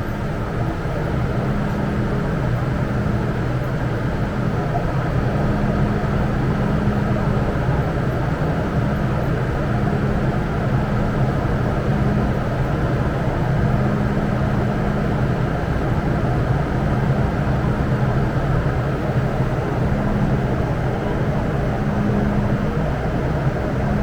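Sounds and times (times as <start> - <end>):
metro train rumbling: 0.0 - 24.0.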